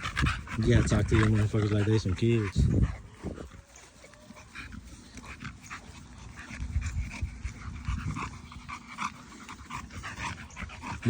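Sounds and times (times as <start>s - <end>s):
dogs panting: 0.0s - 11.0s.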